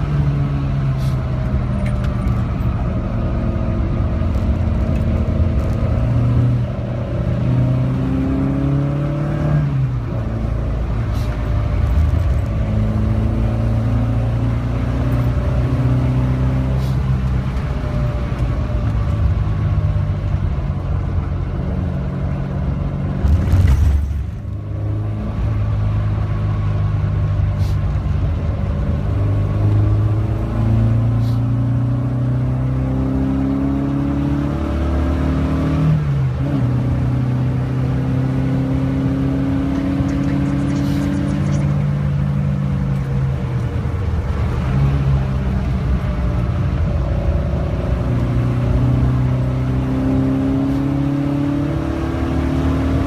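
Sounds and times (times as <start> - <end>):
car engine revving through gears: 0.0 - 27.4, 28.6 - 53.0.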